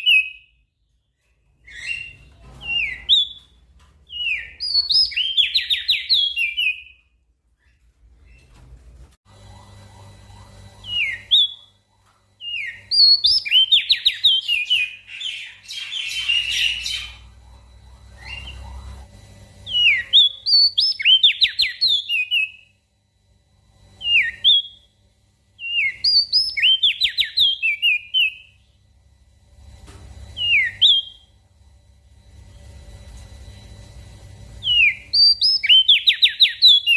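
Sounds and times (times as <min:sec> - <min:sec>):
bird whistling song: 0:00.0 - 0:00.6, 0:01.6 - 0:07.0, 0:10.8 - 0:11.7, 0:12.4 - 0:17.4, 0:18.0 - 0:19.0, 0:19.7 - 0:22.7, 0:24.0 - 0:24.9, 0:25.6 - 0:28.6, 0:30.4 - 0:31.4, 0:34.6 - 0:36.9
faint low hum: 0:00.0 - 0:36.9.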